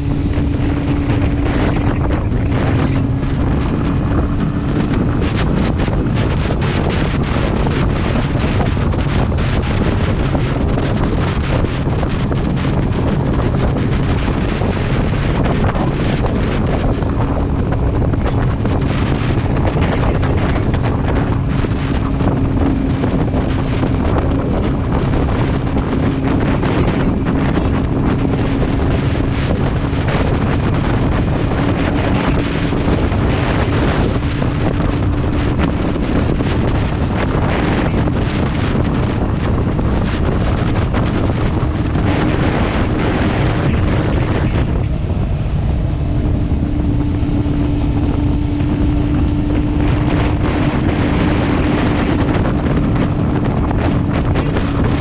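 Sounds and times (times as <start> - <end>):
motorcycle engine drone: 0.0 - 55.0
wind buffeting microphone: 0.0 - 55.0.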